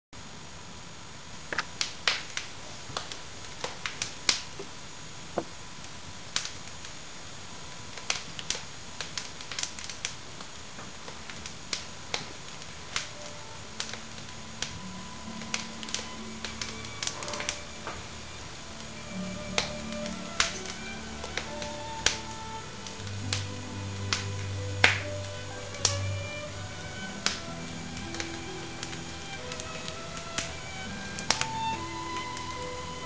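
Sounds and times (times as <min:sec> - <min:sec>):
wood fire crackling and popping: 0:01.2 - 0:33.0.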